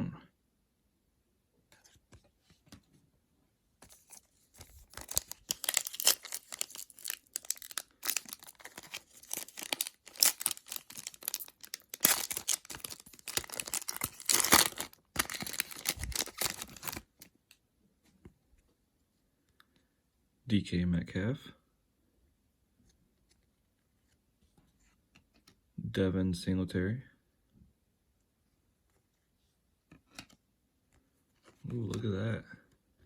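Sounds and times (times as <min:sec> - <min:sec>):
wrapper tearing and crinkling: 0:03.9 - 0:17.3.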